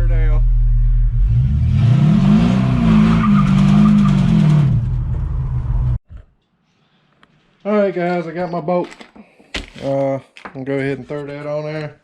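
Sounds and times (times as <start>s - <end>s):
engine revving high: 0.5s - 6.0s
tires squealing: 1.3s - 5.7s.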